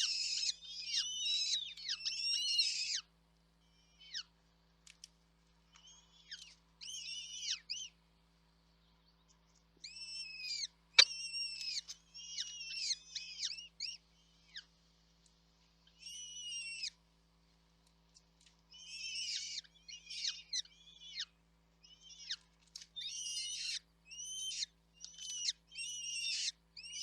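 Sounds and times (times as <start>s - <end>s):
birds chirping: 8.6s - 14.7s.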